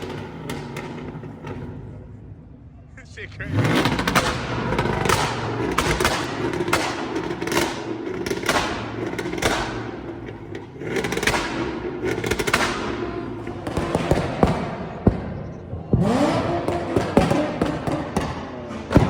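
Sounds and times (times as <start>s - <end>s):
exhaust pops: 0.0s - 2.0s, 3.5s - 19.0s
car engine revving: 0.0s - 19.0s.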